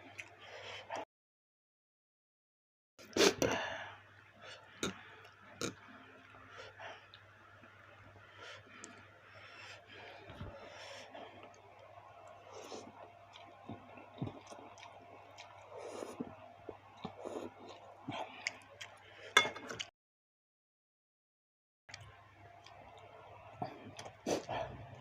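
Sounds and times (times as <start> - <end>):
close chewing: 12.3 - 19.0.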